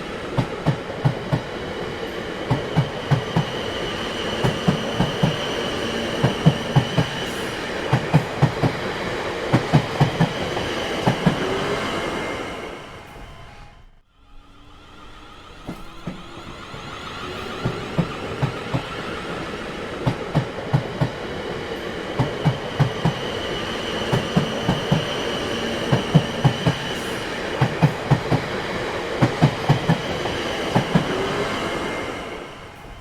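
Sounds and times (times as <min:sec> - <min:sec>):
train wheels clacking over rail joints: 0:22.1 - 0:31.6.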